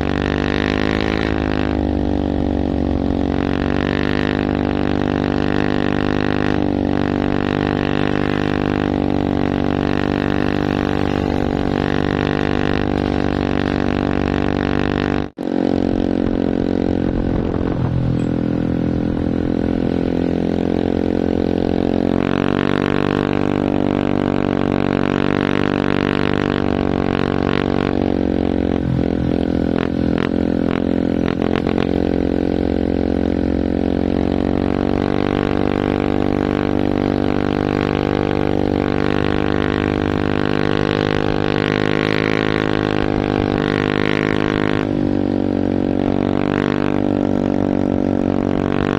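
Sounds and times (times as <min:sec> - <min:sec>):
truck engine droning: 0:08.1 - 0:37.6.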